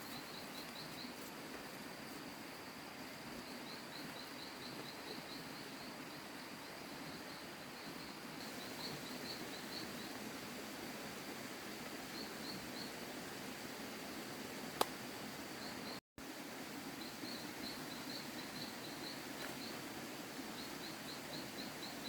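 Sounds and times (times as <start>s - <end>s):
high insect drone: 0.0s - 13.0s, 16.9s - 22.0s.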